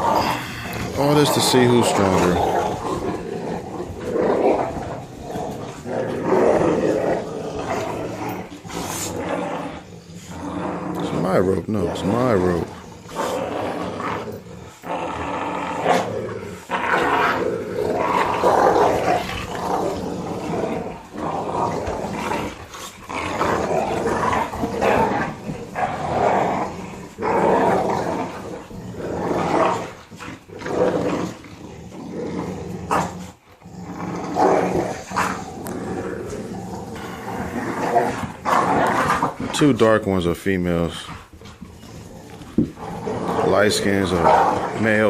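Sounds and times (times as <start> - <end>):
puppies growling: 0.0 - 45.0.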